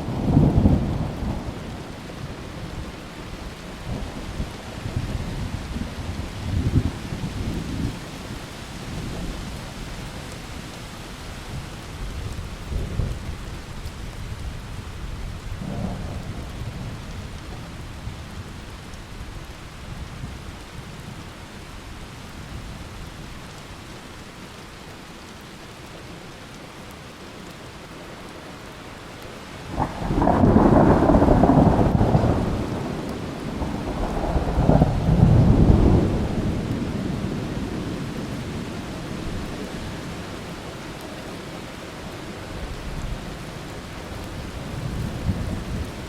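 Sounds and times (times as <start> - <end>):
steady rain hissing: 0.0 - 46.0
rolling thunder: 29.7 - 39.2, 44.3 - 46.0.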